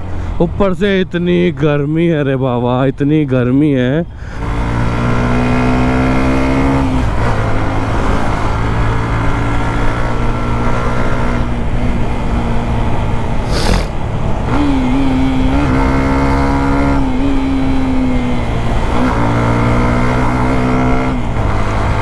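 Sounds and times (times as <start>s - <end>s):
sharp rushing noise: 13.4s - 14.1s.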